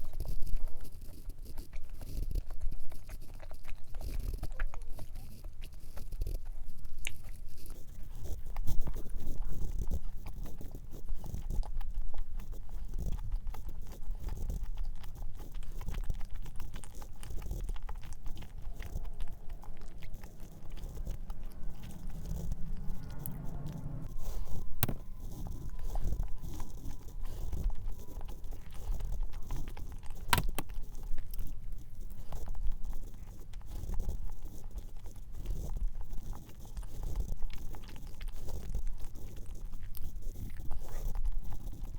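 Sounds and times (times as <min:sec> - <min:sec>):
chewing soft cookie: 0:00.0 - 0:41.9.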